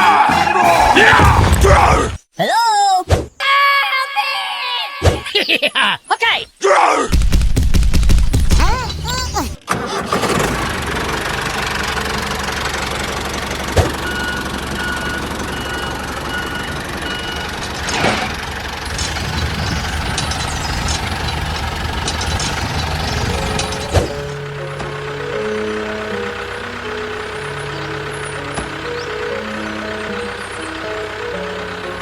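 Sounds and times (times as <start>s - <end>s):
music: 0.0s - 1.1s, 23.3s - 32.0s
small engine rumbling: 8.6s - 32.0s.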